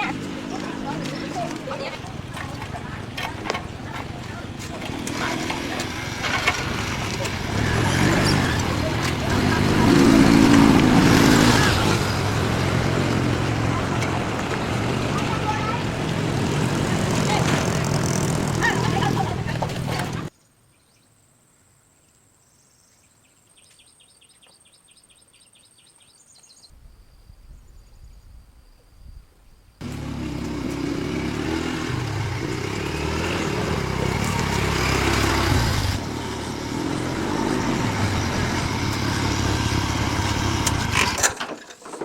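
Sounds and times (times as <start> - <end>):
vehicle engine running: 0.0 - 20.3, 29.8 - 41.3.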